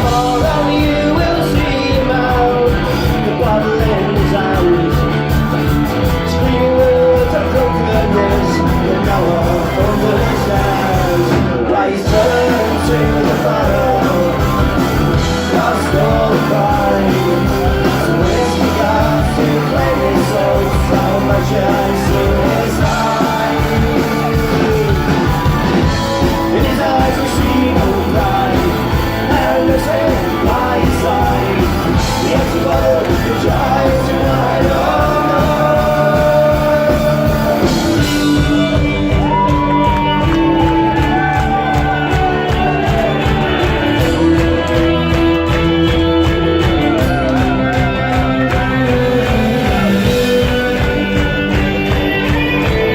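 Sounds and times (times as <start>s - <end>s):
rock band music: 0.0s - 52.9s.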